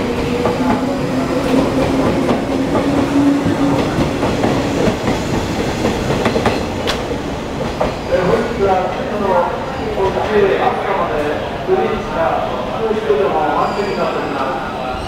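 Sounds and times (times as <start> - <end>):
train wheels clicking over rail joints: 1.5 - 8.5.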